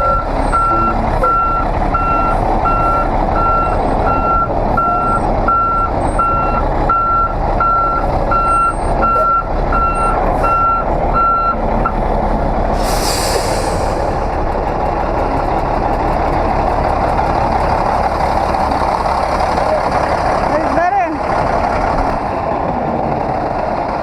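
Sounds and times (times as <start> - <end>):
truck reversing alarm beeping: 0.0 - 12.1
diesel engine rumble: 0.0 - 24.0
air brake hiss: 12.7 - 14.2.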